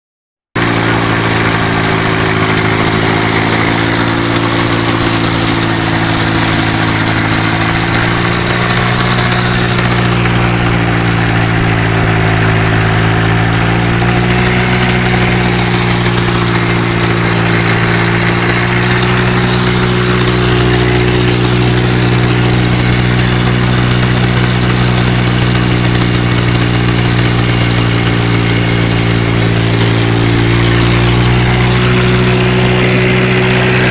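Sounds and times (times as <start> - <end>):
tractor engine running: 0.5 - 33.9.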